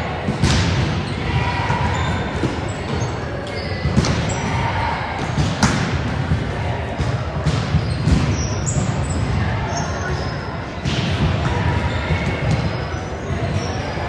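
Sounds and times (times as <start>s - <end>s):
volleyballs struck and bouncing: 0.0s - 13.7s.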